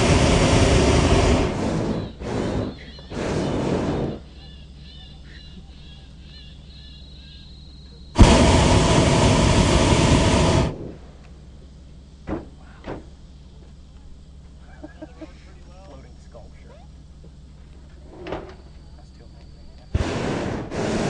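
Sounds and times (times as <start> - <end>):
propane burner firing: 0.0 - 4.3, 8.2 - 11.6, 19.9 - 21.0.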